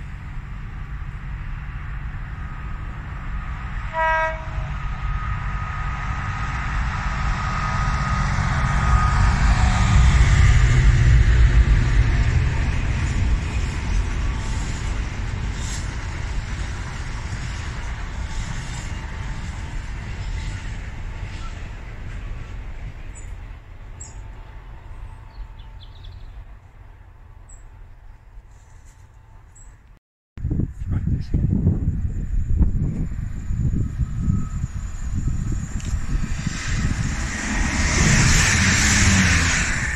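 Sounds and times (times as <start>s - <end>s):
locomotive engine rumble: 0.0s - 25.6s
train horn toot: 3.8s - 6.3s, 7.0s - 12.6s.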